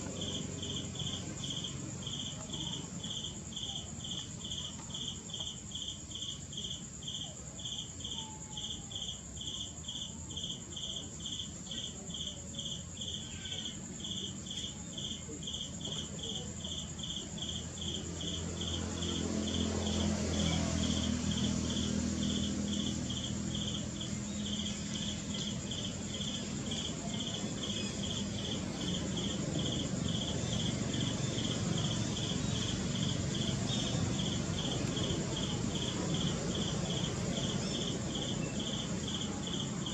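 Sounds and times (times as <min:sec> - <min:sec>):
insect chirping: 0:00.0 - 0:39.9.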